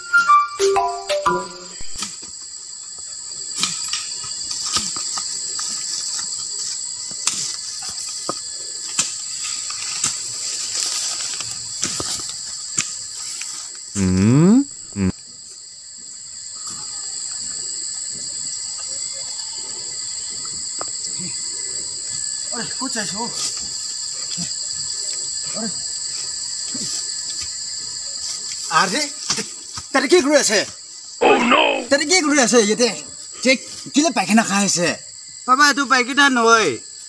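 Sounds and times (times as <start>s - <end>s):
insect chorus drone: 0.0s - 37.0s.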